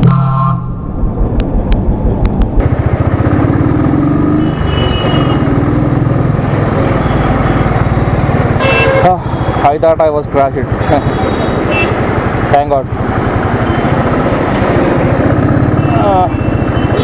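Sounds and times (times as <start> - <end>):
wind noise: 0.6 - 2.6
motorcycle engine running: 2.4 - 17.0.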